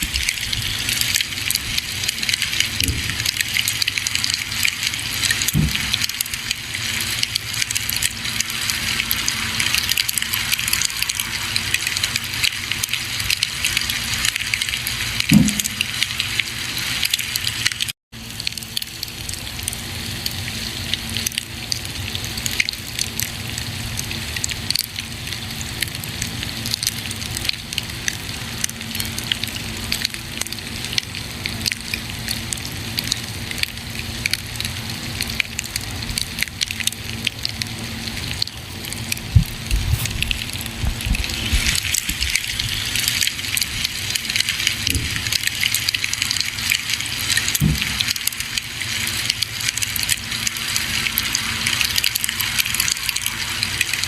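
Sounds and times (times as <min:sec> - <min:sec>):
campfire crackling and hissing: 0:00.0 - 0:54.0
low pops from fire: 0:05.4 - 0:06.3, 0:39.2 - 0:42.4, 0:47.5 - 0:48.2.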